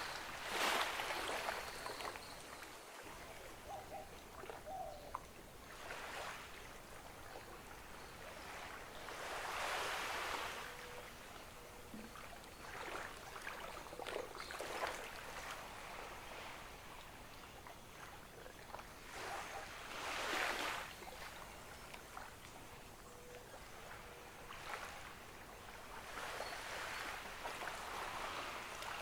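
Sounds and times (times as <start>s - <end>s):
ocean waves washing onto beach: 0.0s - 11.9s, 18.8s - 22.9s, 23.7s - 29.0s.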